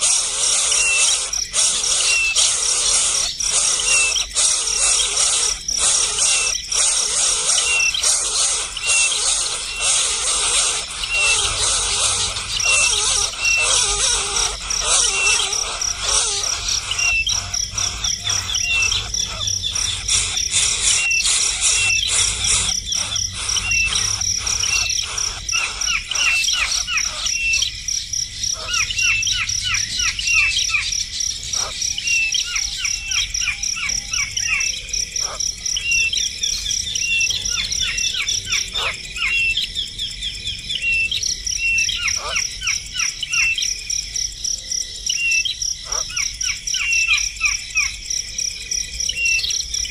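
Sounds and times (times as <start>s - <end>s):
high-pitched insect trill: 0.0s - 49.9s
small birds chirping: 0.0s - 49.9s.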